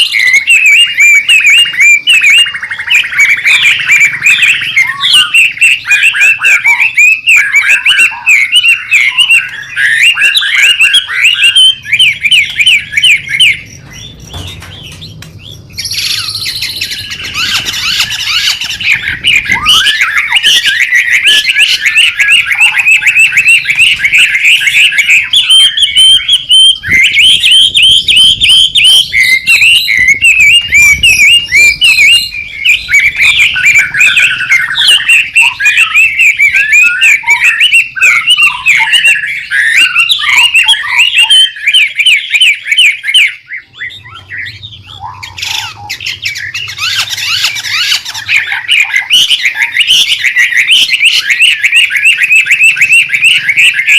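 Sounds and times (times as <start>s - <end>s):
songbird rapid chirping song: 0.0s - 53.9s
bird harsh rasping: 8.6s - 26.4s.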